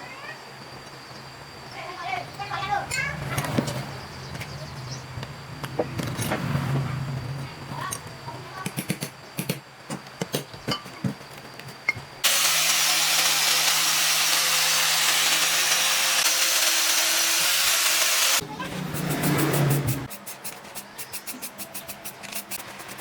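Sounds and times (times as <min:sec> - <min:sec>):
power tool hissing: 0:12.2 - 0:23.0.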